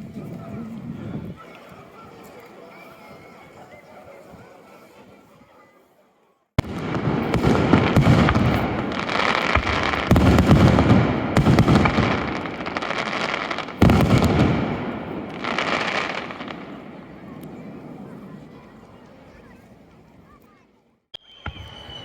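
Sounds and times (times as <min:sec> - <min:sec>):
fireworks bursting with crackling: 0:06.6 - 0:18.6, 0:21.2 - 0:22.0.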